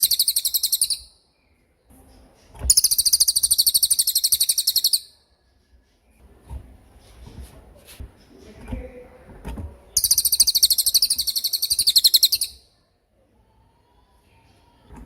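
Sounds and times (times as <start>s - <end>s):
songbird rapid high trill: 0.0s - 1.1s, 2.7s - 5.2s, 10.0s - 12.6s.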